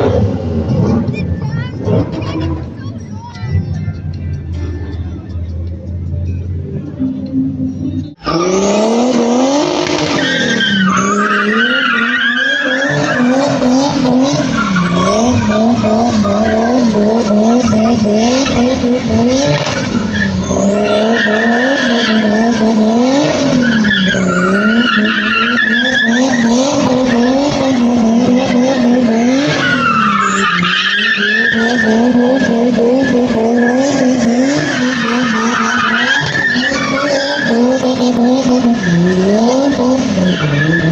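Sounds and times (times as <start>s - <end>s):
car engine revving: 0.0s - 40.9s
tyre squeal: 10.0s - 18.7s, 19.6s - 40.9s.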